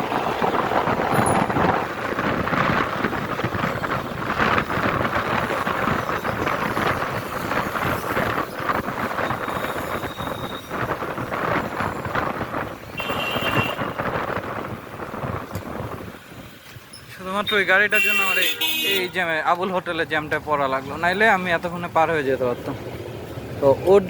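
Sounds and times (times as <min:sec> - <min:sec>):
wind buffeting microphone: 0:00.0 - 0:17.1
city traffic: 0:00.0 - 0:24.0.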